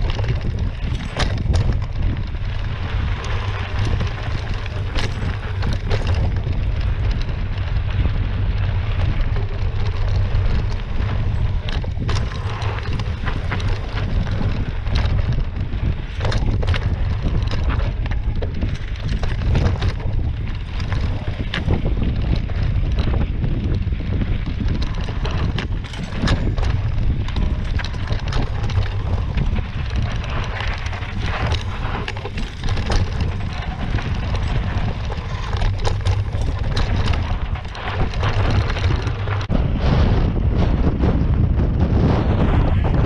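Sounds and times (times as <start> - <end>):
tyres over loose stones: 0.0 - 39.5
bike clicks and rattles: 0.0 - 43.0
wind buffeting microphone: 0.0 - 43.0.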